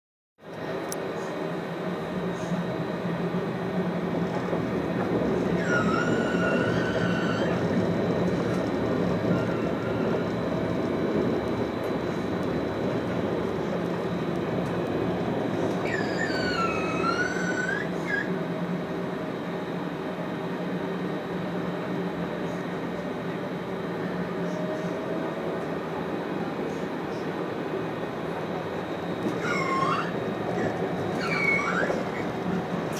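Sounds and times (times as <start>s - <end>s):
tram rumbling on rails: 0.4s - 32.9s
wailing wheel squeal: 4.4s - 10.7s, 15.4s - 18.4s, 29.2s - 32.9s.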